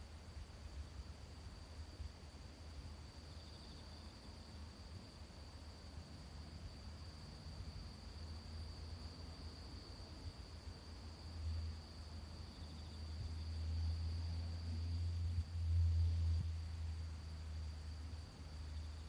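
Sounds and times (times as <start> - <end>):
high insect trill: 0.0 - 19.0.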